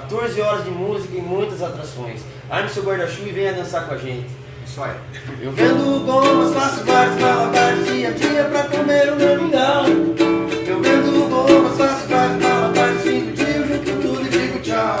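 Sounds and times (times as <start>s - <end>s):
acoustic guitar strumming: 5.6s - 15.0s
strummed ukulele: 5.6s - 15.0s.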